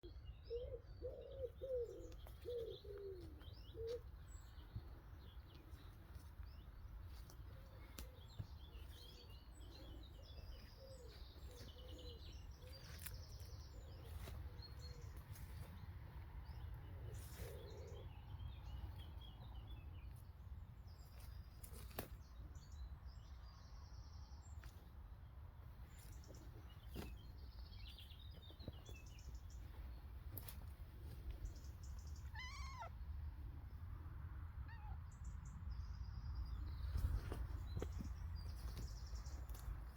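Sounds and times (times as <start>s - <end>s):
birds chirping and twittering: 0.0s - 33.9s, 34.7s - 39.9s
low gliding bird calls: 32.0s - 32.9s.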